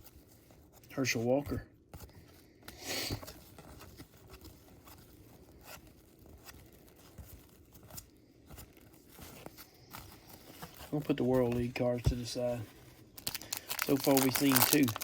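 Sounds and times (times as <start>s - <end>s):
cards sliding rustle: 1.9s - 15.0s.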